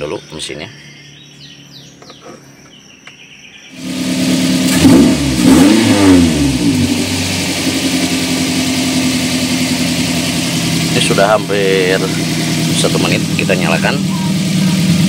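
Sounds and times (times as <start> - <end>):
car engine revving and idling: 3.7 - 15.0.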